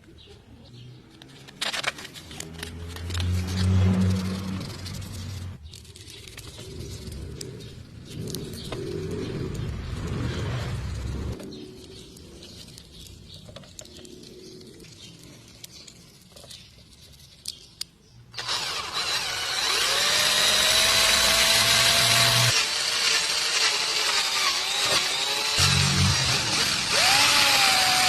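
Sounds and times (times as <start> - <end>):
power tool whining: 18.4 - 28.0.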